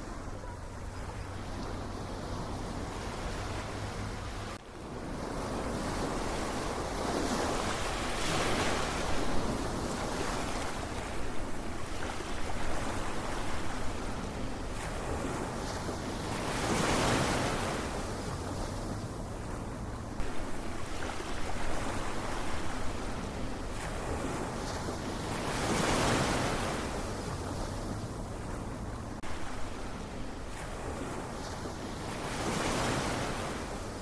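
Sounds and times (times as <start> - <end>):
ocean waves washing in: 0.0 - 34.0.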